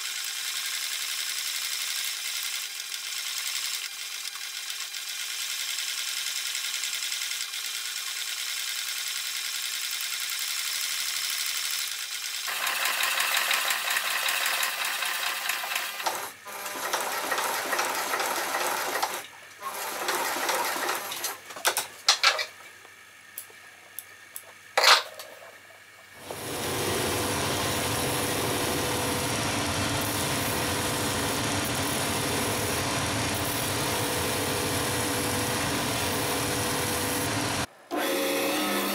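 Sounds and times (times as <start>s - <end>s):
sewing machine stitching: 0.0s - 21.4s.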